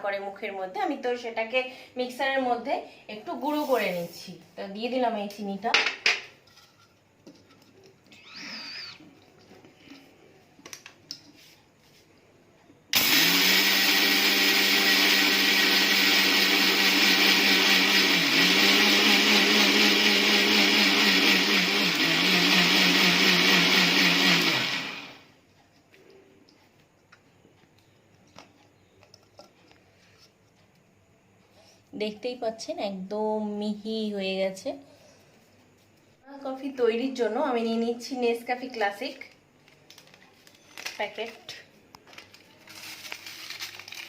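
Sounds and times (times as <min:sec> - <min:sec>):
mixer grinder motor grinding: 0:13.0 - 0:25.3.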